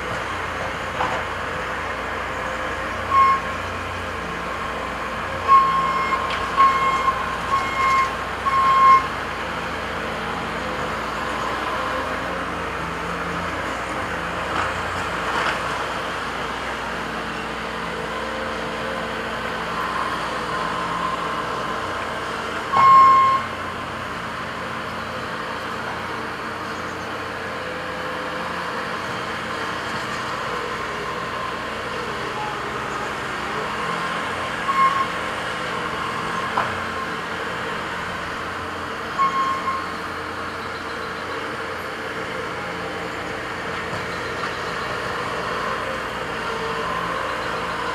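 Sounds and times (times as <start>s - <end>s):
heavy equipment engines running: 0.0s - 47.9s
short high beeps: 3.1s - 3.4s, 22.8s - 23.5s, 39.2s - 39.9s.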